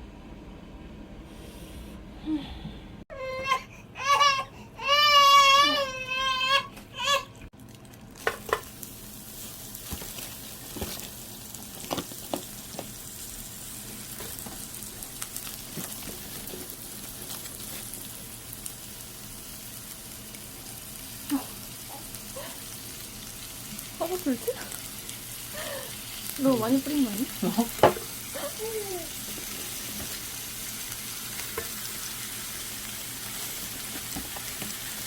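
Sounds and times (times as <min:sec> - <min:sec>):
meat sizzling: 0:07.6 - 0:35.0.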